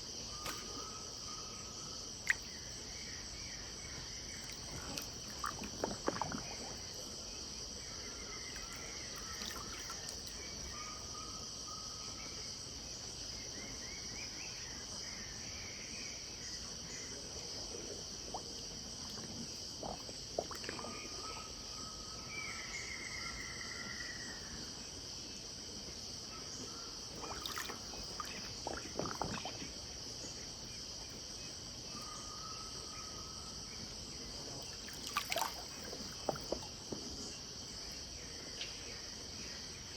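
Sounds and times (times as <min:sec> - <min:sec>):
high insect drone: 0:00.0 - 0:39.9
brief sharp water sounds: 0:04.4 - 0:06.9, 0:08.6 - 0:10.3, 0:27.2 - 0:29.7, 0:34.7 - 0:36.8.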